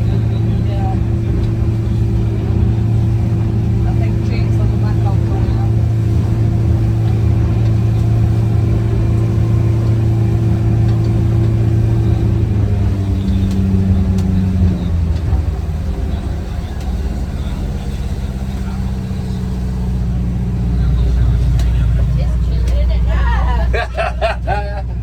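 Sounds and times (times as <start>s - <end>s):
boat engine running: 0.0s - 25.0s.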